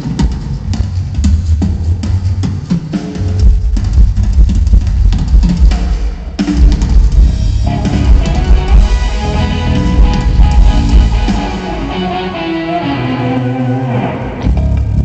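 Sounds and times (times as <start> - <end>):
drum kit playing loud beat: 0.0 - 13.1
low bass: 7.1 - 12.1, 13.4 - 15.0
sustained guitar notes: 7.6 - 15.0.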